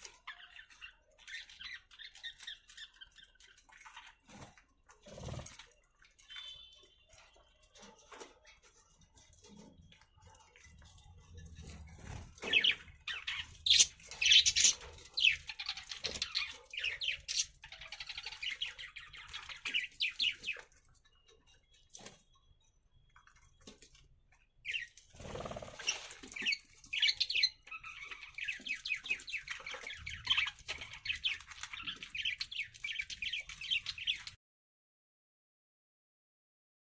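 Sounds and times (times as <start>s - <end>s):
budgerigars chirping: 12.0s - 20.7s, 24.6s - 34.3s.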